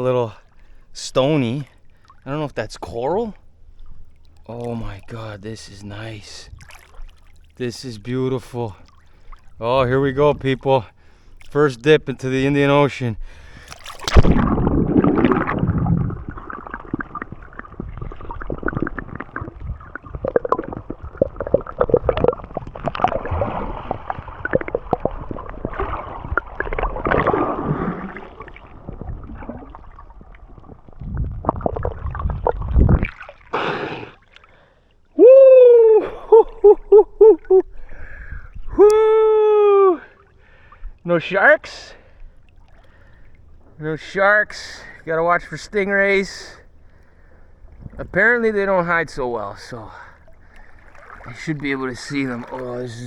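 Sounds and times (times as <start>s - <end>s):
water gurgling and sloshing: 0.0s - 35.2s, 36.0s - 53.0s
muffled bubbling: 13.2s - 34.2s, 35.2s - 40.6s.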